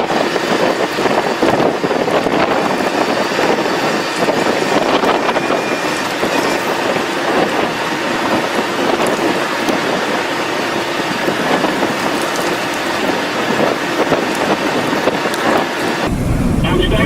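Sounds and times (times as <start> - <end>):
strong storm wind rushing: 13.0 - 17.0
rain clicking on vehicle: 16.1 - 17.0.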